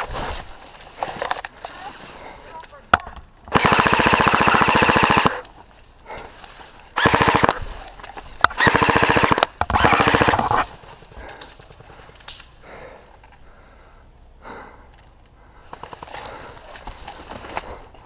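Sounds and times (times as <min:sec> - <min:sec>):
airsoft rifle full-auto bursts: 0:03.5 - 0:05.4, 0:07.0 - 0:07.6, 0:08.4 - 0:10.7.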